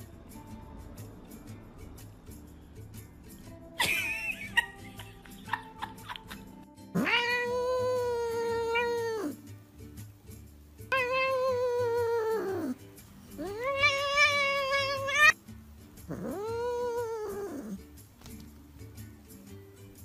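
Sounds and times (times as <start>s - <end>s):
quiet background music: 0.0s - 20.0s
cat meowing: 7.0s - 9.4s, 10.9s - 15.4s, 16.1s - 17.8s.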